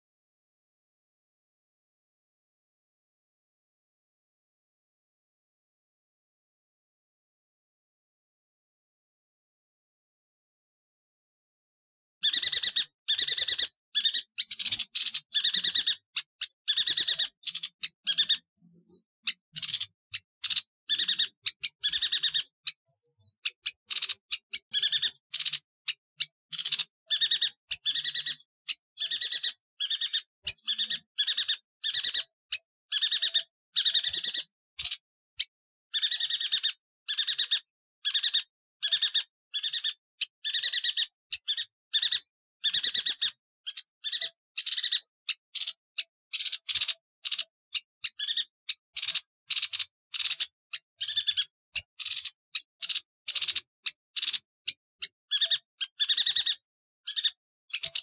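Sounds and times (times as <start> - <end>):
bird buzzy trilled calls: 12.2 - 58.0.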